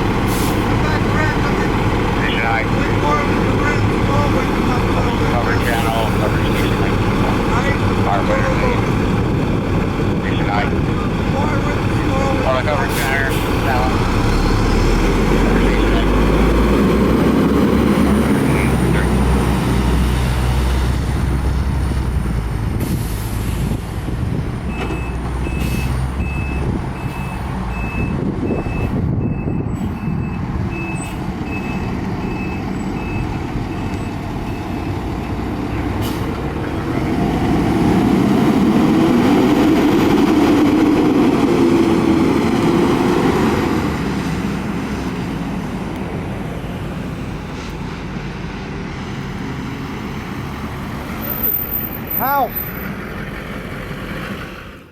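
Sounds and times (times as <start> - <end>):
diesel truck engine rumbling: 0.0 - 54.9
reversing alarm beeps: 24.8 - 35.4.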